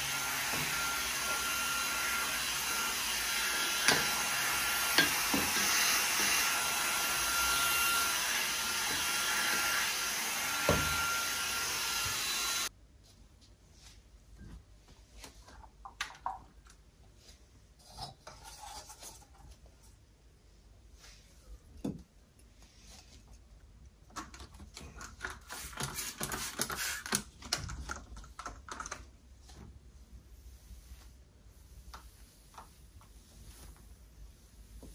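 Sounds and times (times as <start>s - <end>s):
vacuum cleaner running: 0.0s - 12.7s.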